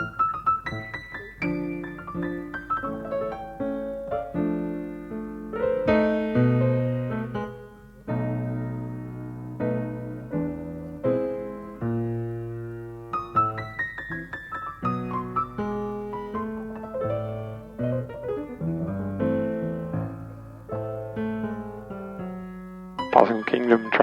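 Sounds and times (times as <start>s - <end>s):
solo piano music: 0.0s - 24.0s.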